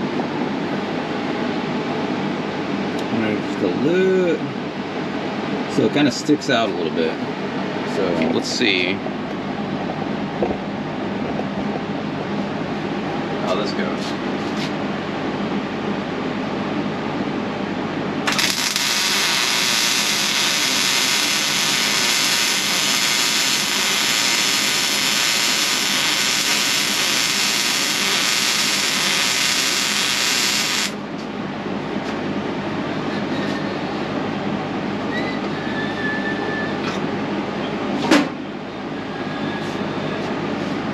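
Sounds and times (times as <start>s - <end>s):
steady background hum: 0.0s - 40.9s
welder arc crackling and hissing: 18.3s - 31.0s.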